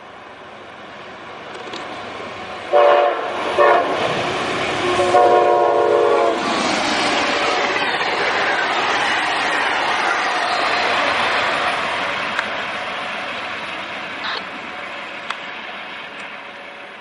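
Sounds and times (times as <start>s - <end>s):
locomotive air horn blasts: 2.7s - 4.0s, 5.0s - 6.4s.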